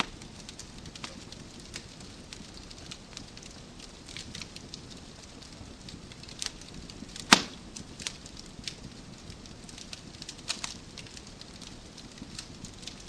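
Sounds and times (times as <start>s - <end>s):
wood fire crackling: 0.0s - 13.0s
loud sharp pop of fire: 6.4s - 8.2s.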